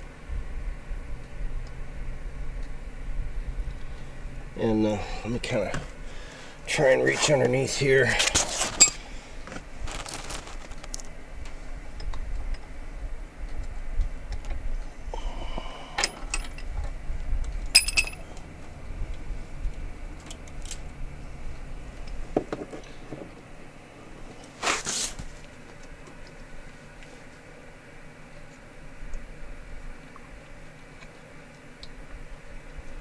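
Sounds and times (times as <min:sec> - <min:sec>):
low handling rumble: 0:00.4 - 0:22.4.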